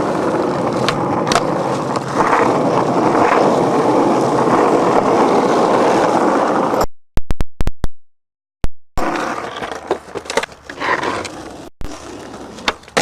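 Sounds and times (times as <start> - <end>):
skateboard rolling on concrete: 0.0 - 6.8, 9.0 - 13.0
skateboard clacks and knocks: 9.0 - 13.0.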